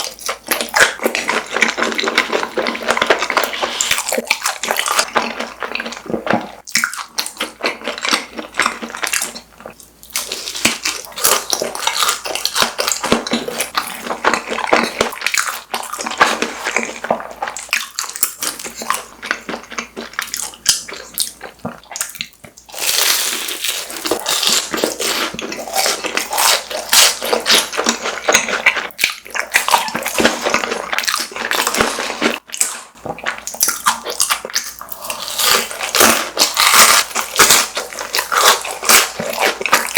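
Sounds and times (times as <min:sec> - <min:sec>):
crunching and chewing snacks: 0:00.0 - 0:39.9.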